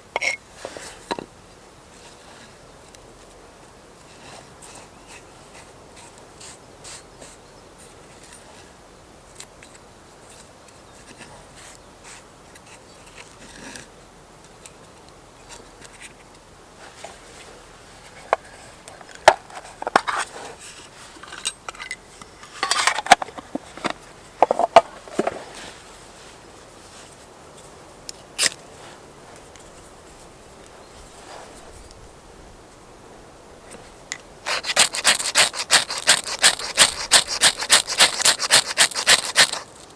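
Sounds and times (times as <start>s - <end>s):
objects clicking and knocking: 34.1s - 39.9s.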